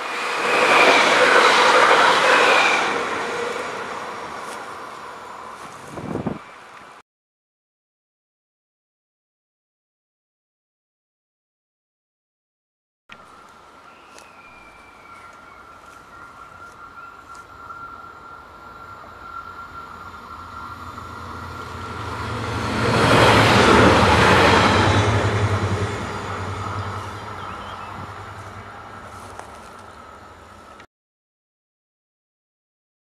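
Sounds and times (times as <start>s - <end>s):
diesel railcar passing: 0.0s - 7.0s, 13.1s - 30.9s
wheels rushing on rail: 0.0s - 7.0s, 13.1s - 30.9s.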